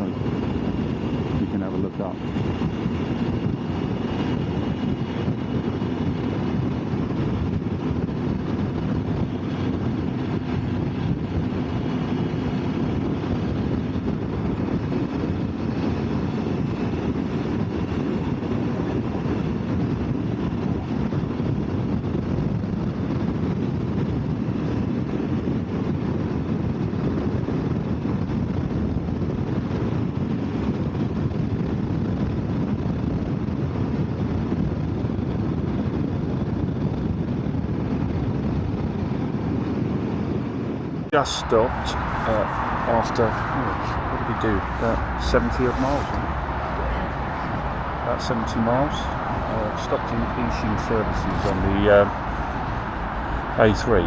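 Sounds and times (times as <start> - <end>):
wind rush on microphone: 0.0 - 54.0
motorcycle engine drone: 41.2 - 54.0.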